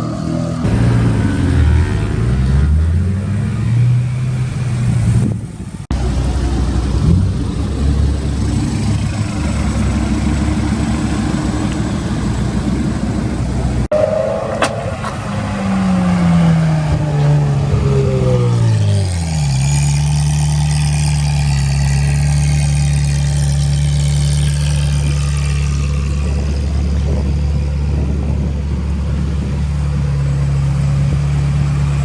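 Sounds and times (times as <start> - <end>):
car engines droning: 0.0 - 32.0
car engine note falling: 5.2 - 19.0.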